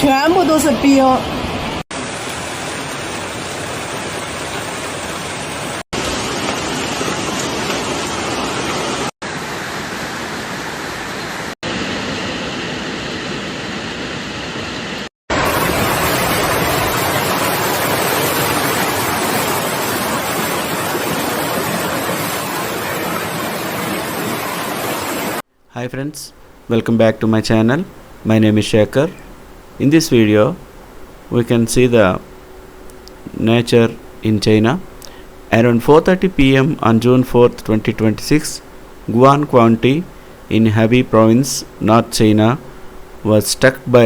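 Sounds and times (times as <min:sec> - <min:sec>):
hail and heavy rain pelting: 0:15.4 - 0:25.4.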